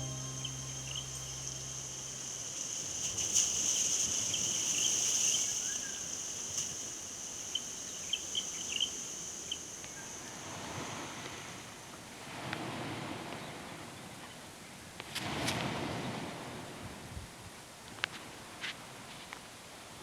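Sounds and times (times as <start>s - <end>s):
short high chirps: 0.0s - 3.1s
insects trilling: 0.0s - 11.8s.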